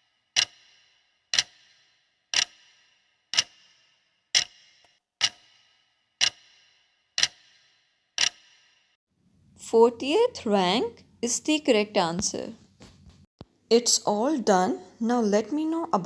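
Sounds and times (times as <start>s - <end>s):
sharp ringing clock ticks: 0.3s - 8.7s.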